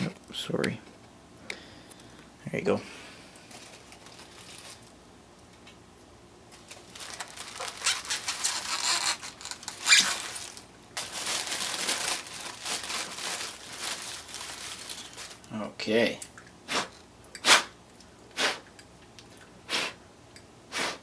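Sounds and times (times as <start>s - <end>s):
packing material crinkling: 3.4s - 5.0s, 6.5s - 15.6s.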